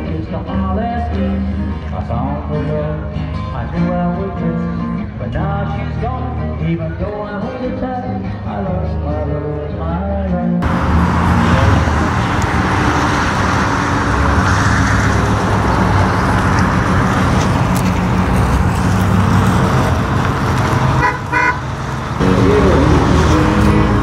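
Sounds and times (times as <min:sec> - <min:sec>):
cars driving slowly past: 0:10.6 - 0:24.0
high-pitched car horn toot: 0:21.0 - 0:21.6.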